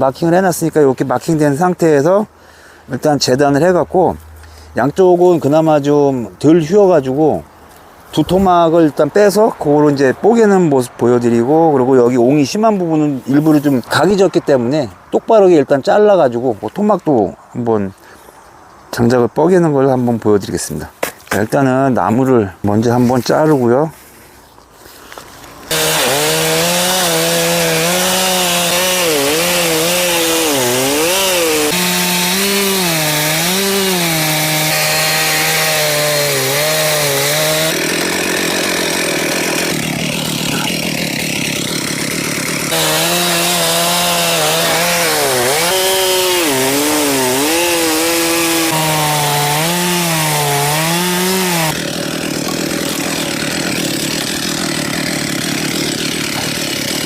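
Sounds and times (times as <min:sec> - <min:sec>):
chainsaw cutting log: 0:25.6 - 0:57.0.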